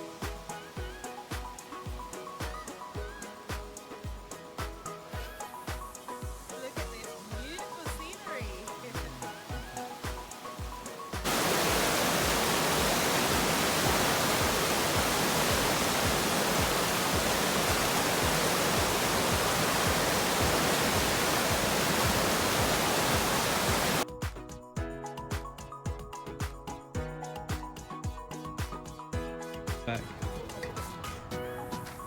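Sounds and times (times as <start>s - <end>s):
background music: 0.0s - 32.0s
floodwater rushing in river: 6.7s - 24.0s.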